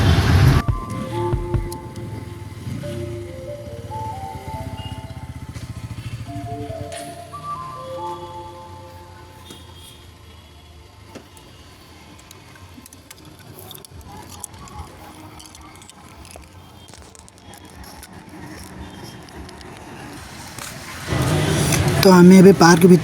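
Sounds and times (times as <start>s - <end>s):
distant traffic rumble: 0.0s - 9.5s, 17.3s - 23.0s.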